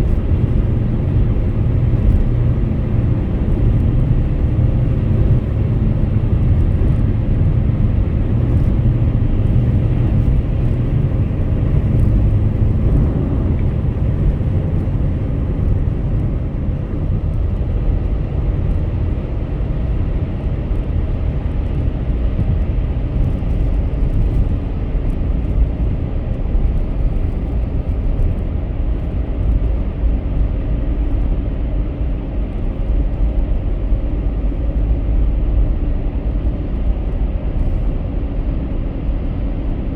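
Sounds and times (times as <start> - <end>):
car engine: 0.0 - 21.7
tyre and road noise: 0.0 - 39.9.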